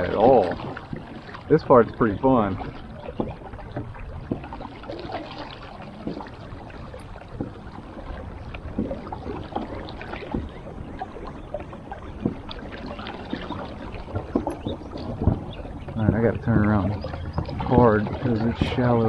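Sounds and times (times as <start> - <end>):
small knocks and splashes: 0.0 - 19.0
water lapping against hull: 0.0 - 19.0.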